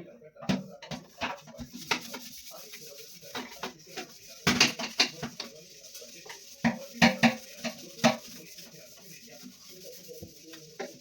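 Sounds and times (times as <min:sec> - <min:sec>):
kitchenware clattering: 0:00.0 - 0:02.4, 0:03.0 - 0:08.9.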